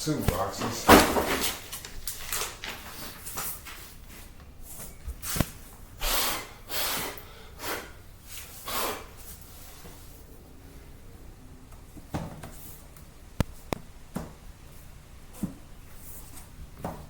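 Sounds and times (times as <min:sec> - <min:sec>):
person breathing out through nose: 0:06.0 - 0:09.8.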